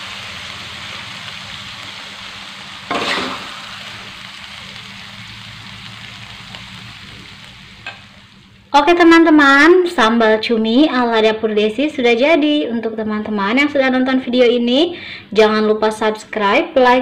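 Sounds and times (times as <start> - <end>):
food sizzling in oil: 0.0 - 10.0
metal spatula scraping a wok: 2.9 - 3.5.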